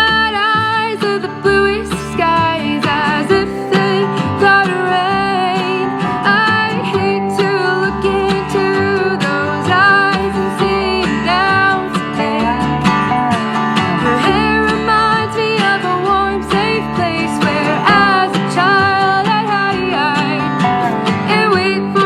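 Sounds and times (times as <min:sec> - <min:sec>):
person singing: 0:00.0 - 0:22.0
strummed acoustic guitar: 0:00.0 - 0:22.0
steady bass line: 0:01.4 - 0:22.0.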